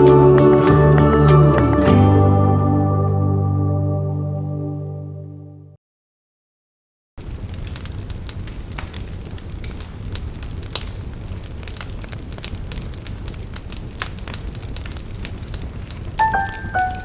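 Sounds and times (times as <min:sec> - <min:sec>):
wood fire crackling: 0:00.0 - 0:02.0, 0:07.2 - 0:17.0
piano notes: 0:00.0 - 0:04.6, 0:16.2 - 0:17.0.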